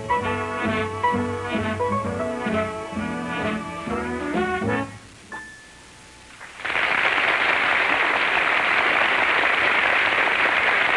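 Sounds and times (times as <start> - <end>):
jazz band with piano: 0.0 - 5.5
audience applause: 6.4 - 10.9.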